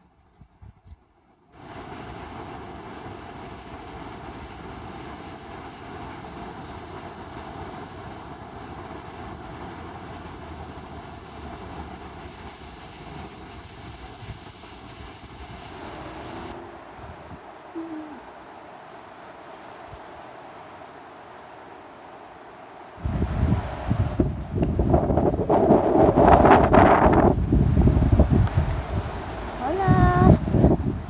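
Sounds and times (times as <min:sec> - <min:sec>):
strong wind rushing: 0:22.8 - 0:31.0.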